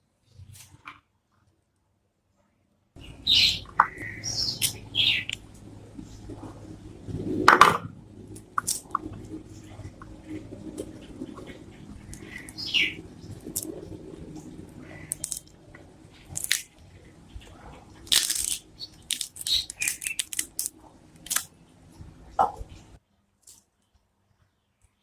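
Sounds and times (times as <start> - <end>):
low steady hum: 3.0 - 23.0
small objects being handled: 15.1 - 15.6, 16.2 - 16.8, 17.9 - 22.8.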